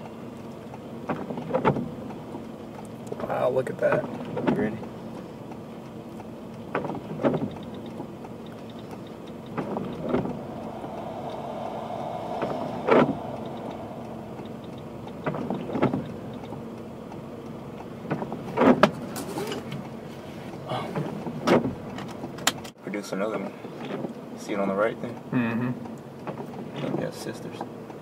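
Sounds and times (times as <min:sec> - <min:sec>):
windshield wipers sweeping: 0:06.6 - 0:19.1
car engine idling: 0:07.4 - 0:20.4.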